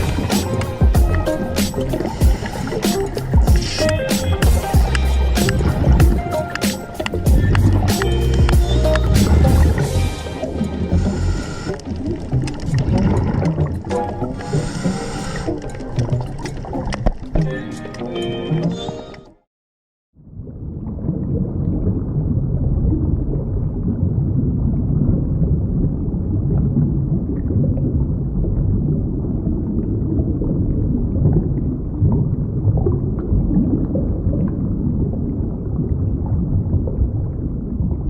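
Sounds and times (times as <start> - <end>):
underwater rumble of water: 7.2 - 17.4, 20.2 - 38.0.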